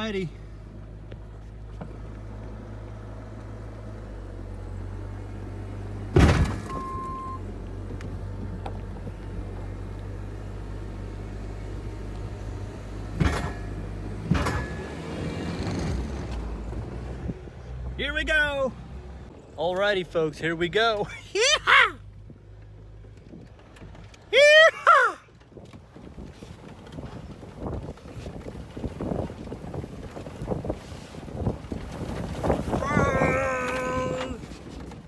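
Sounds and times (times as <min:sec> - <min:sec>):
short beep: 0:06.7 - 0:07.4.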